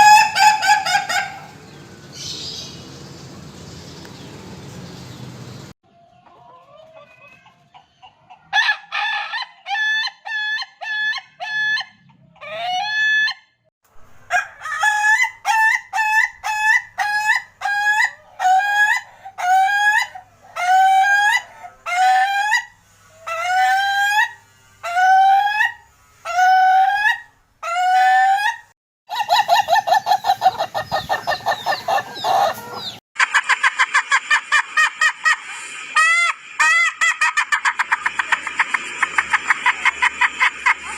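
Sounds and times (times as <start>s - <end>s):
roosters crowing: 0.0s - 2.8s, 8.5s - 13.4s, 14.2s - 33.0s.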